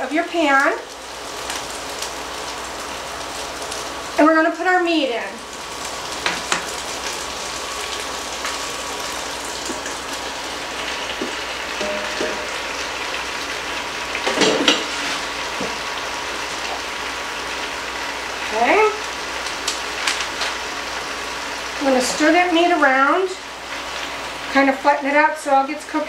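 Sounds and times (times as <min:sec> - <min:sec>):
beef sizzling in hot oil: 0:00.0 - 0:26.0
cookware clattering: 0:11.8 - 0:12.8.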